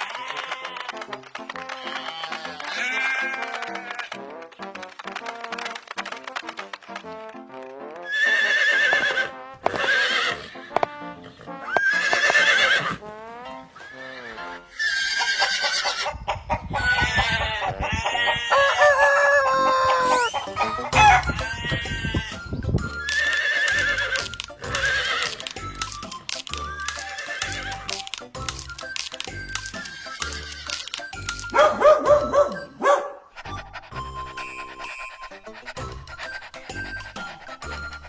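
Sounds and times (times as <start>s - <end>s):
farm animal calls: 0.0s - 4.2s, 8.1s - 13.2s, 13.8s - 22.4s, 23.0s - 25.6s
background music: 0.0s - 38.0s.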